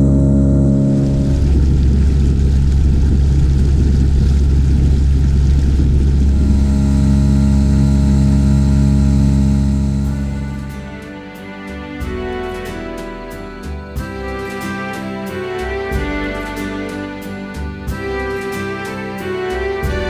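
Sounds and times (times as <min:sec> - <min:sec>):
outboard motor humming: 0:00.0 - 0:10.5
rushing noise: 0:00.0 - 0:20.0.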